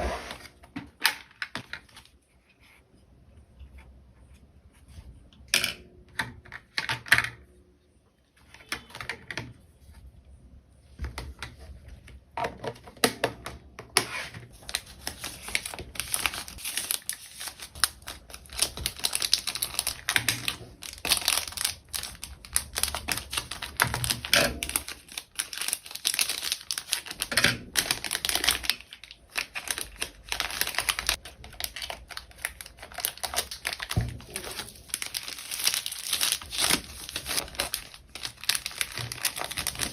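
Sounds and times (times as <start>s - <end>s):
plastic packaging crinkling and clicking: 12.1s - 39.9s.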